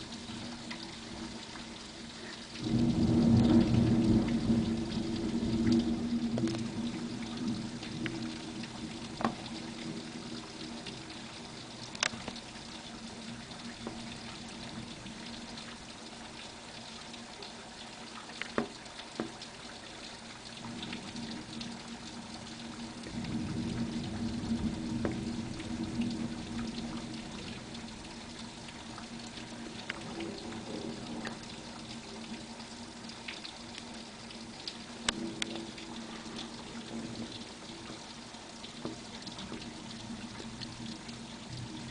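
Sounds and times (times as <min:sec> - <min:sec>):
rain falling: 0:00.0 - 0:41.9
thunder rumbling: 0:02.6 - 0:11.9, 0:20.6 - 0:33.1, 0:35.0 - 0:41.9.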